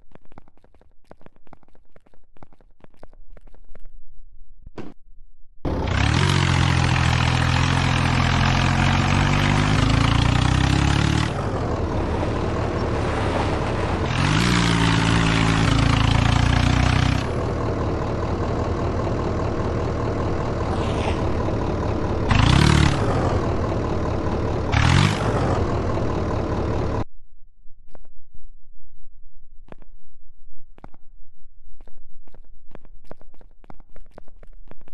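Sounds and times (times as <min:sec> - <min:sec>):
tractor diesel engine revving: 0:05.7 - 0:27.0.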